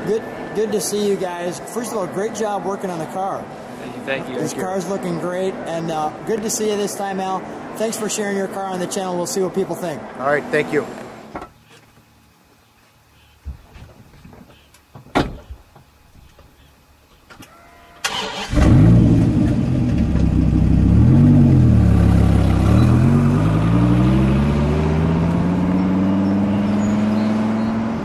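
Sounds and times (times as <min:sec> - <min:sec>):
car engine starting and revving: 0:18.0 - 0:28.0.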